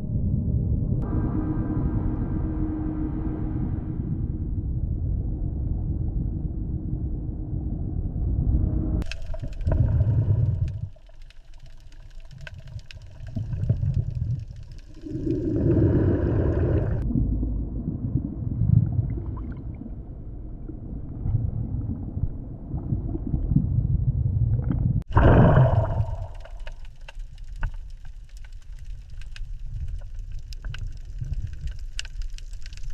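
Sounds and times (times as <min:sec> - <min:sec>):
low underwater rumble: 0:00.0 - 0:32.9
water gurgling: 0:09.0 - 0:32.9.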